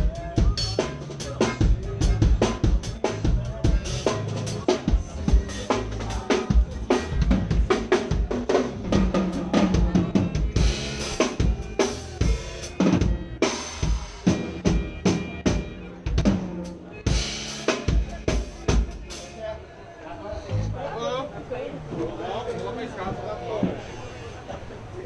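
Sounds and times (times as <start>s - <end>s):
drum kit beat: 0.0s - 19.4s
band playing: 0.0s - 19.6s.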